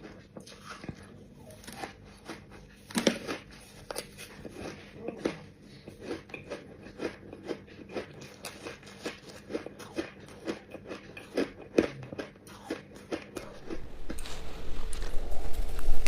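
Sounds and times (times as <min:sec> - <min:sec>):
chewing crunchy ice: 0:00.0 - 0:15.8.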